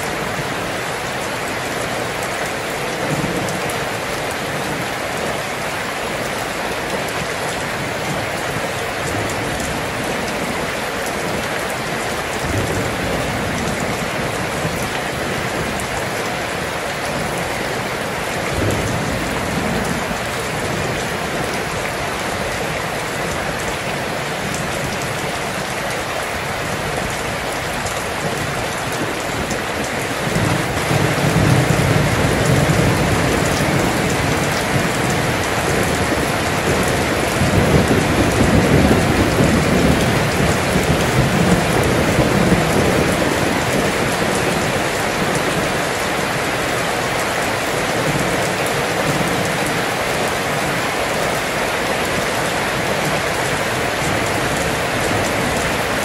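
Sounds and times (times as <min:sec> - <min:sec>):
rain pattering on wet road: 0:00.0 - 0:56.0
thunder rumbling: 0:26.7 - 0:46.4.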